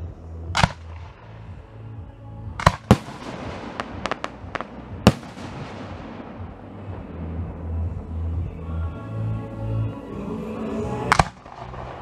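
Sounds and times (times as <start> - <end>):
music: 0.0 - 12.0
sharp firework cracks: 0.6 - 1.3, 2.6 - 8.0, 11.1 - 12.0.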